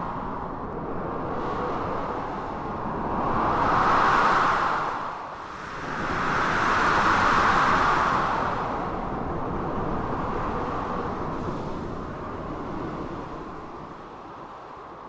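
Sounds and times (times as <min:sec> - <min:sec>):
blizzard wind: 0:00.0 - 0:15.0.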